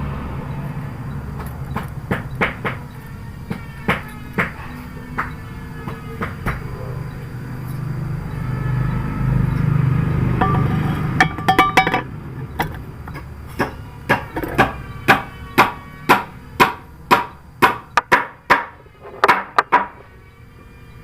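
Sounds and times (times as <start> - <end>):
hammer blows on metal: 1.8 - 6.7, 10.4 - 12.8, 13.6 - 20.1.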